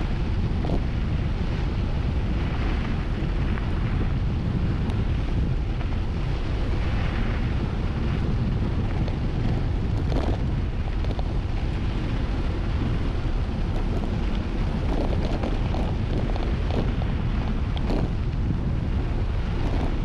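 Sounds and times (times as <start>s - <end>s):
bike clicks and rattles: 0.0s - 20.0s
wind buffeting microphone: 0.0s - 20.0s.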